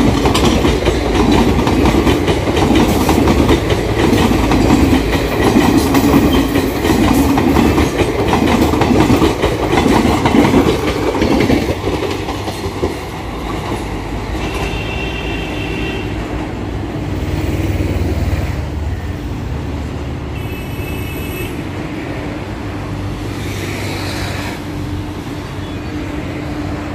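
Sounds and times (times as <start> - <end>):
train wheels clattering and rumbling: 0.0 - 15.4
short high train horn toots: 14.4 - 16.3, 20.4 - 21.6.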